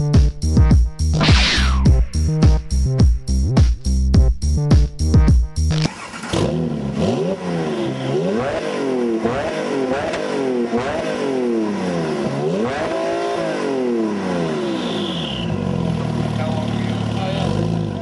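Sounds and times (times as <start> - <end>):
car engine revving: 5.8 - 18.0.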